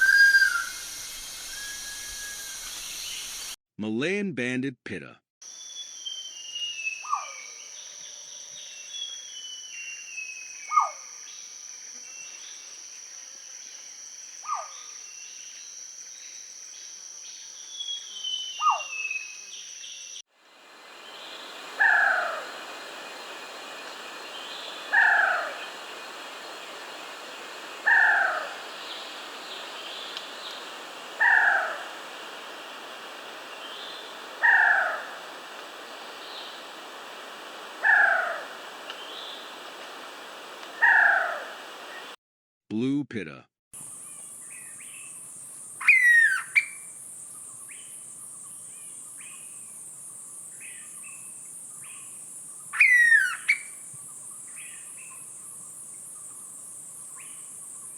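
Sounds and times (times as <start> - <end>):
bird calling short falling whistles: 0.0 - 0.8
high insect drone: 0.0 - 3.6, 19.4 - 42.1.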